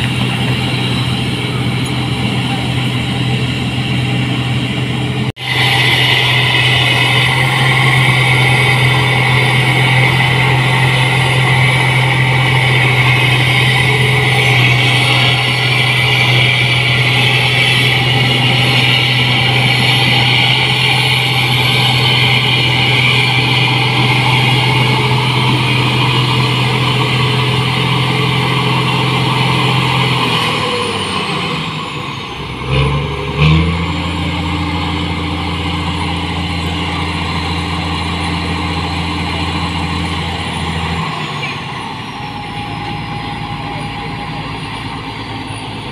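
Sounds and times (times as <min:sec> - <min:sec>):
combine harvester engine running: 0:00.0 - 0:45.9.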